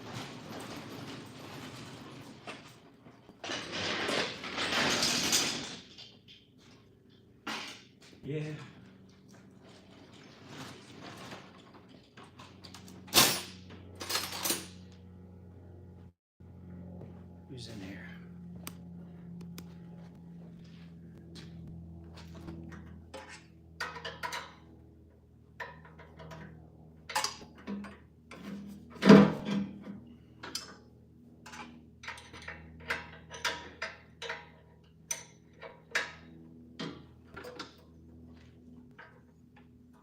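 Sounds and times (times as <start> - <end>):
steady low hum: 12.1 - 29.0.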